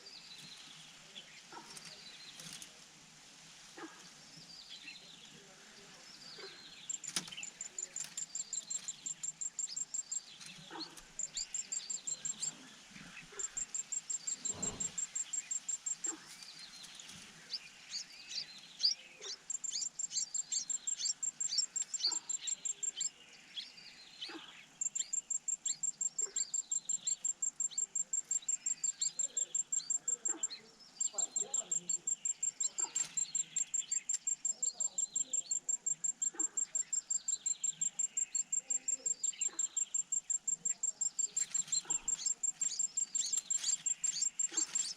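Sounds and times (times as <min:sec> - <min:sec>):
insect trilling: 0:24.8 - 0:44.9.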